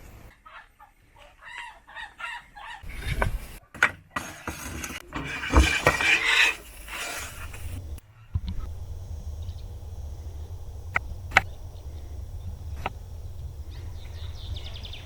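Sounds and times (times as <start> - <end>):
chickens clucking: 0.4 - 8.0.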